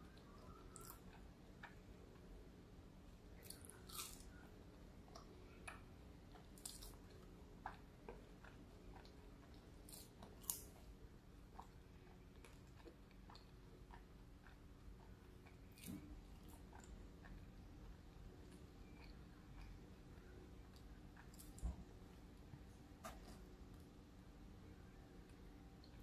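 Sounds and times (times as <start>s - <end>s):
faint chewing with mouth clicks: 0.0s - 26.0s.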